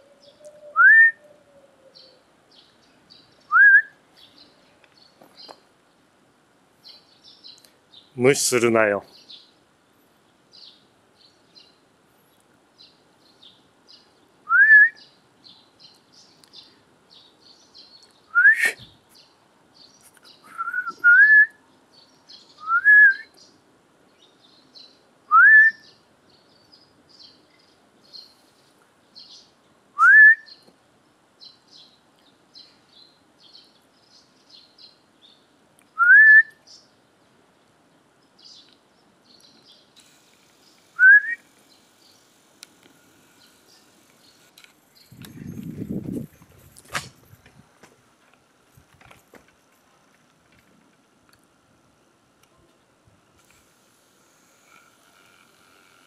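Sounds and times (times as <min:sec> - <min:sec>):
small birds chirping faintly: 0:00.0 - 0:56.0
person whistling for a dog: 0:00.7 - 0:01.2, 0:03.5 - 0:03.9, 0:14.5 - 0:15.0, 0:18.4 - 0:18.9, 0:20.5 - 0:21.5, 0:22.6 - 0:23.3, 0:25.3 - 0:25.8, 0:30.0 - 0:30.5, 0:36.0 - 0:36.5, 0:41.0 - 0:41.4.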